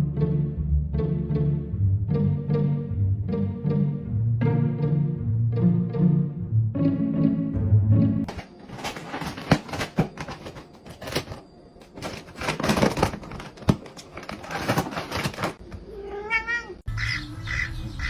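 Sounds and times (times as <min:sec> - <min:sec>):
crinkling: 0:08.3 - 0:16.0.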